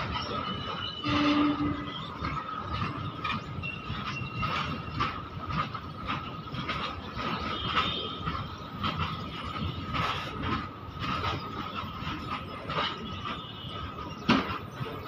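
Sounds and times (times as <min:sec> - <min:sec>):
high wheel squeal: 0:00.1 - 0:05.2.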